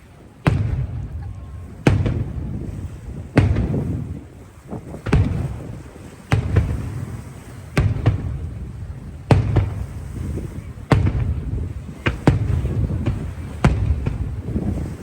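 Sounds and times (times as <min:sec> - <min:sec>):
fireworks booming: 0:00.4 - 0:15.0.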